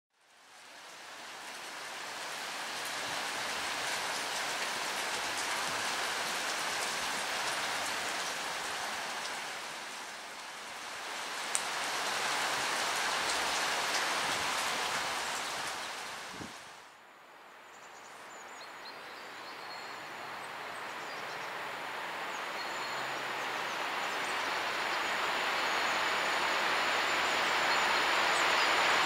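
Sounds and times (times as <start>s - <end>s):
light rain hissing: 0.2s - 29.0s
raindrop ticks: 11.5s - 11.7s.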